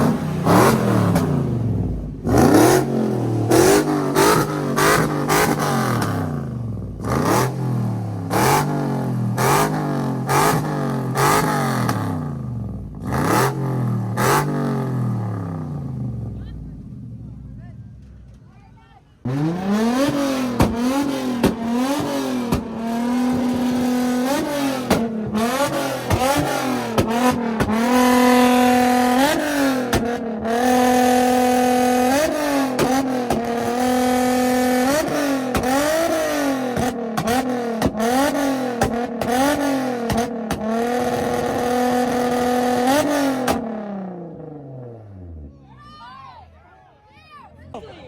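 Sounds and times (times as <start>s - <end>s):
car engine revving: 0.0s - 17.4s, 19.2s - 45.4s
exhaust pops: 20.5s - 23.9s, 24.8s - 25.4s.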